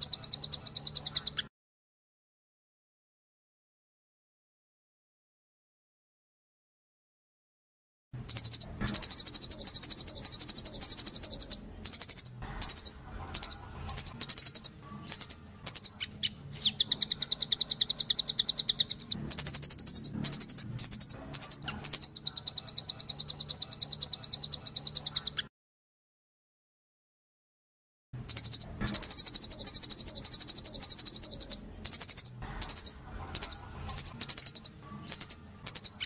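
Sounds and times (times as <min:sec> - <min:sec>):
bird high-pitched trills: 0:00.0 - 0:01.5, 0:08.3 - 0:25.5, 0:28.2 - 0:36.0.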